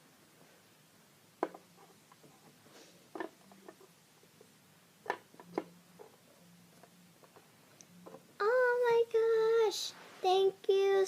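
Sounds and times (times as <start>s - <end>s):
small toys knocking and clicking: 1.4s - 2.3s, 3.1s - 3.9s.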